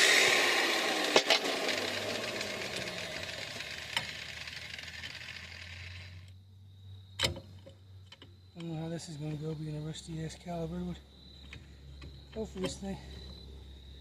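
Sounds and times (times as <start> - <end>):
grinder disc whine spinning down: 0.0 - 6.3.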